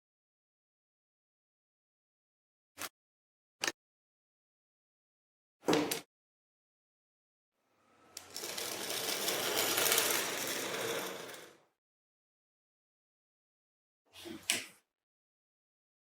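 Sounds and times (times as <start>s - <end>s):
handheld power tool on metal: 8.2s - 11.4s.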